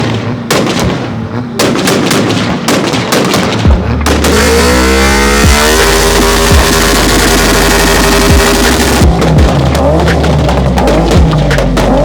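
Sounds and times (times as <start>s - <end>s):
loud sharp bangs: 0.0s - 12.0s
electronic music with heavy bass: 3.6s - 12.0s.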